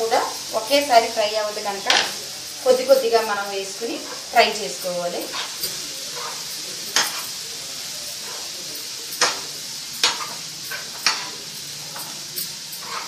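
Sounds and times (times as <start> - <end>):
food sizzling in a pan: 0.0 - 13.0
spoon clinking against pan: 8.2 - 13.0.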